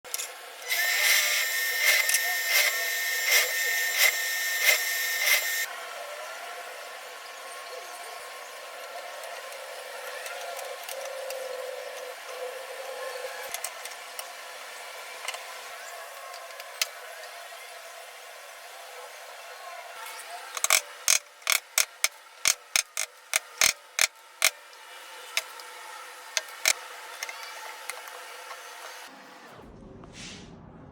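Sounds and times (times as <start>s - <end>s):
power tool whining on wood: 0.1s - 5.7s, 20.1s - 29.1s.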